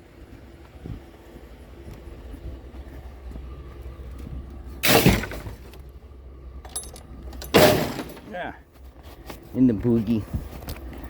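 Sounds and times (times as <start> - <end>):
low steady rumble: 0.0 - 11.0
scrap metal crashing: 4.8 - 5.8, 7.4 - 8.4.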